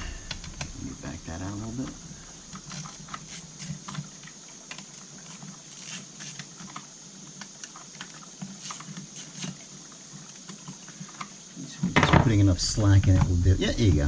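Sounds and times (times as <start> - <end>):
faint steady hum: 0.0 - 14.0
small tools clicking and tapping: 2.5 - 11.4.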